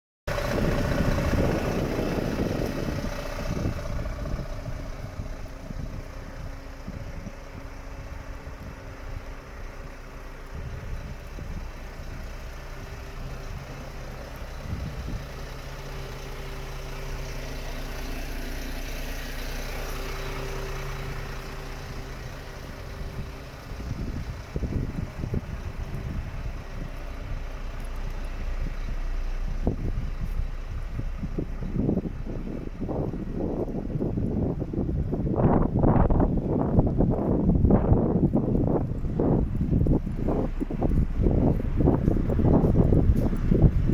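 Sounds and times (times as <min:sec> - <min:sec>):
truck diesel engine idling: 0:00.3 - 0:43.9.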